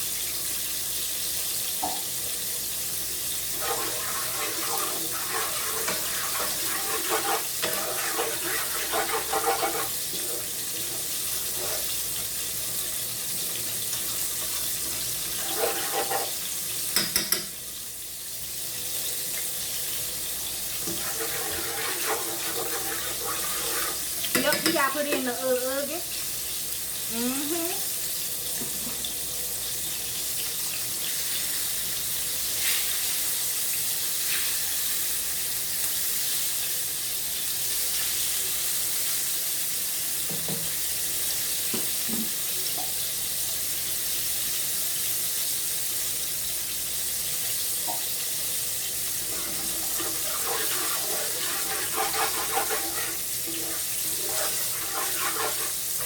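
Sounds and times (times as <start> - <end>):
kitchen tap running: 0.0 - 34.6, 44.9 - 56.0
dishes clinking: 16.9 - 17.5, 24.2 - 25.3.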